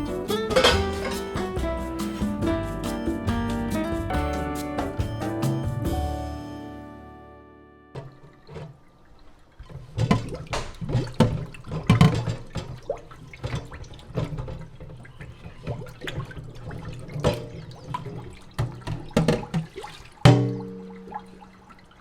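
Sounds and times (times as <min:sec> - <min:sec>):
dishes knocking and clinking: 0:00.0 - 0:01.6
water running into sink: 0:00.0 - 0:04.2, 0:08.0 - 0:22.0.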